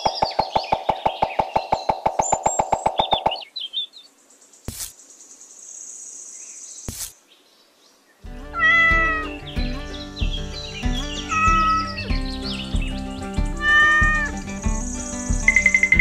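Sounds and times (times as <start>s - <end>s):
sharp clicks: 0.0s - 3.5s
background music: 8.3s - 16.0s
cat meowing: 8.6s - 9.2s, 11.3s - 11.8s, 13.6s - 14.4s.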